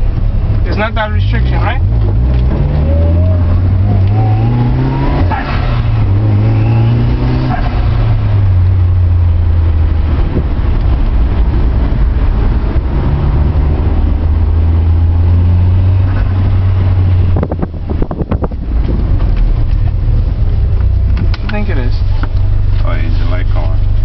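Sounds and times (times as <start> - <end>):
car engine drone from cabin: 0.0 - 24.0
sharp clicks and knocks: 20.8 - 22.5.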